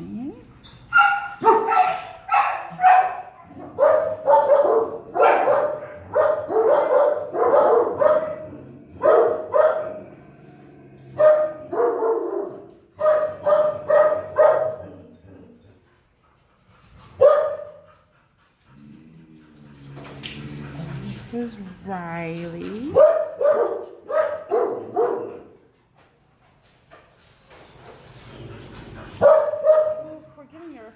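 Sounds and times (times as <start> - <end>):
dog barking: 0.9 - 10.0, 11.2 - 15.0, 17.2 - 17.8, 22.9 - 25.6, 29.2 - 30.2.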